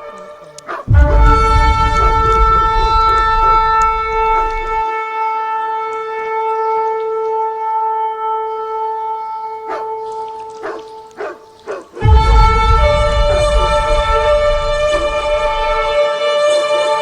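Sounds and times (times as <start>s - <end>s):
long horn-like blast: 0.0s - 17.0s
deep rumble: 0.8s - 4.8s, 12.0s - 16.0s.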